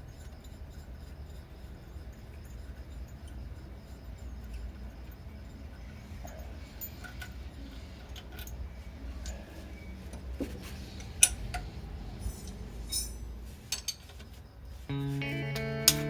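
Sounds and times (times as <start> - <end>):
steady low hum: 0.0 - 15.5
metallic clinks of tools: 11.1 - 14.1.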